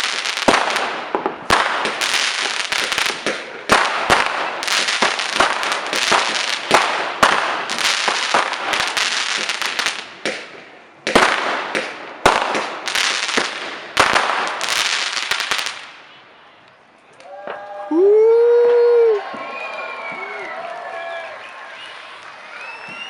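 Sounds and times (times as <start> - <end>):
fireworks bangs and crackling: 0.0 - 16.2.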